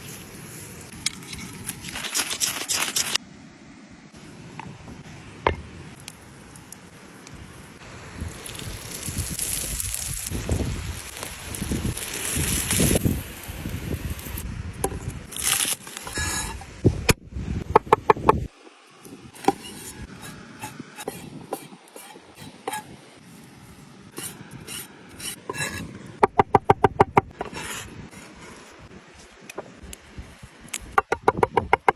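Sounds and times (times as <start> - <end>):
scraping and rubbing on wood: 19.4 - 22.9, 24.2 - 25.9.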